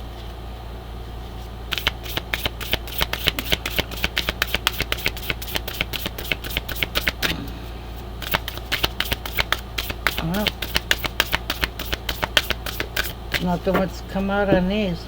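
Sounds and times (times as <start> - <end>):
cards being shuffled: 1.3 - 7.3, 8.2 - 14.4.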